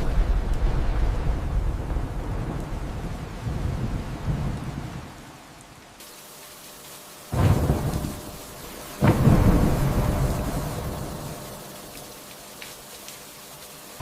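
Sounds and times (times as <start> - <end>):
thunder rumbling: 0.0 - 5.2, 7.3 - 12.0
steady rain: 0.0 - 14.0
sudden thunderclaps: 9.0 - 11.5.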